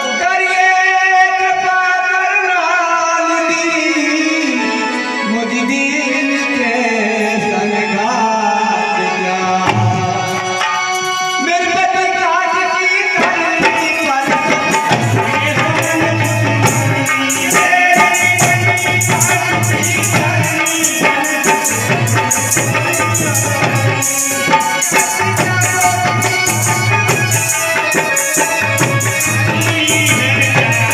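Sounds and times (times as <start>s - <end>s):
tabla drum: 9.4s - 30.9s.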